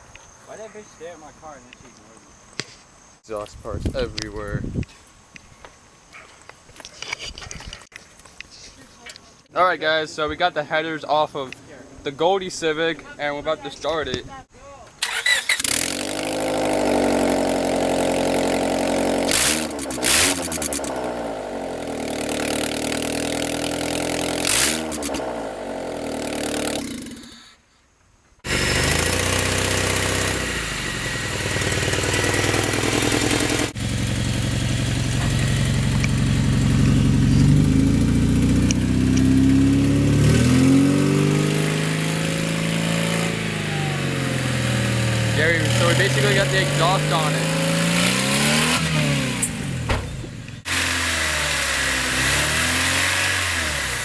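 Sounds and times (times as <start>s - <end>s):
car engine idling and revving: 15.2s - 27.0s, 28.4s - 54.0s.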